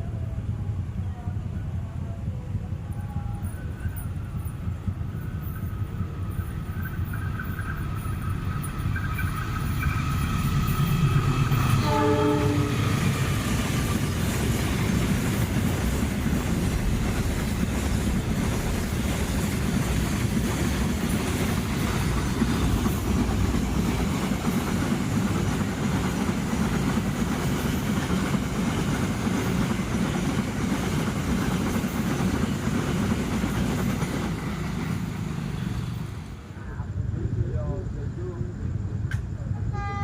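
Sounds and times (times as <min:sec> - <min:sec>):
train wheels rumbling on rails: 0:00.0 - 0:40.0
wheels clickety-clack: 0:03.5 - 0:11.8, 0:12.8 - 0:36.1.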